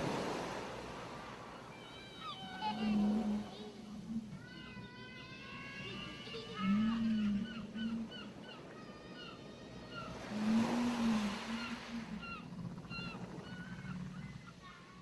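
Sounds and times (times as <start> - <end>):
wave washing onto shore: 0.0 - 3.8, 10.1 - 12.3
birds chirping: 0.1 - 15.0.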